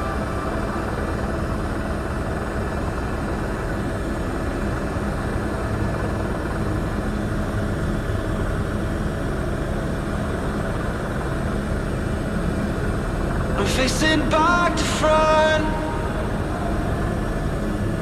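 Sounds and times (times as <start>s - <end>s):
helicopter engine and rotor drone: 0.0s - 18.0s.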